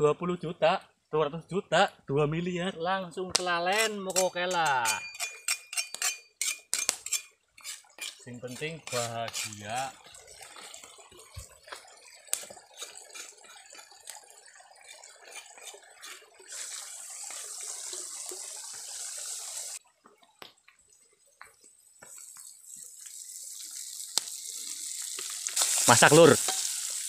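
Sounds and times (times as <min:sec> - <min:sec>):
paste sizzling in a wok: 0:06.0 - 0:10.0, 0:15.4 - 0:19.8, 0:22.1 - 0:27.0.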